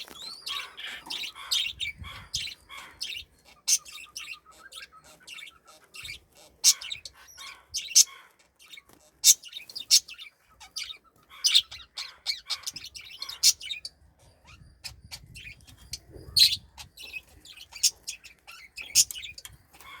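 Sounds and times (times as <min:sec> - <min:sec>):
cockatiel chirping: 0:00.0 - 0:13.9.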